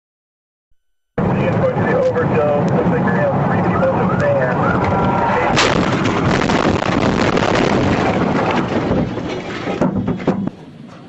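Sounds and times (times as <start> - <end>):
loud rumbling: 1.2 - 10.7
sharp bang: 5.4 - 8.2.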